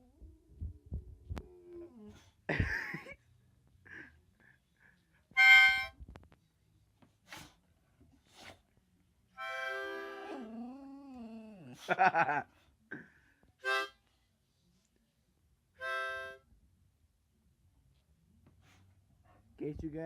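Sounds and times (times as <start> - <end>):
harmonica chords: 5.4 - 5.9, 9.4 - 10.3, 13.6 - 14.0, 15.8 - 16.4.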